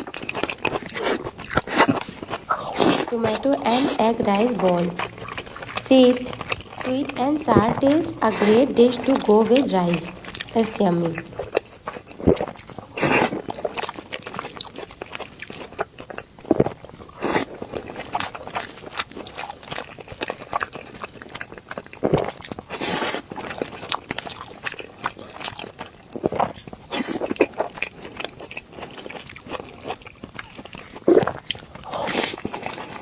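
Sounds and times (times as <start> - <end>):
wet chewing mouth clicks: 4.6 - 6.8.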